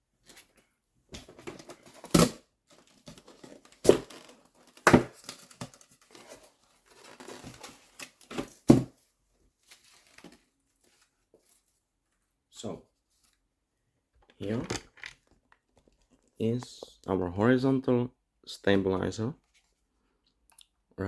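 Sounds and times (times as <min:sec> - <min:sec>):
packaging rustling and crinkling: 0:01.3 - 0:08.8, 0:09.6 - 0:11.1.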